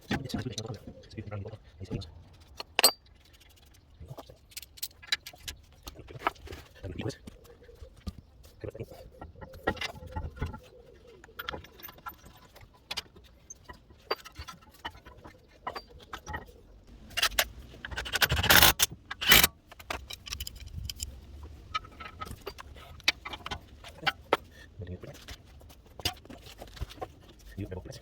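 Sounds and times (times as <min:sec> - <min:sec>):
metal tools clinking: 0:02.3 - 0:06.4, 0:11.2 - 0:25.3.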